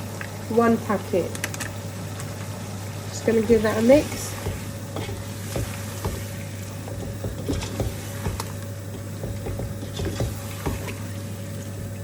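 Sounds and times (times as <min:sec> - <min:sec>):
spoon scraping a pan: 0:04.0 - 0:10.9.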